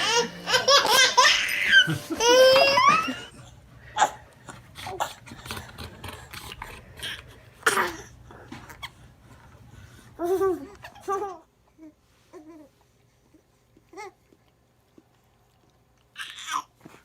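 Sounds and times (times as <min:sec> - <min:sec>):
baby squealing and laughing: 0:00.0 - 0:03.3.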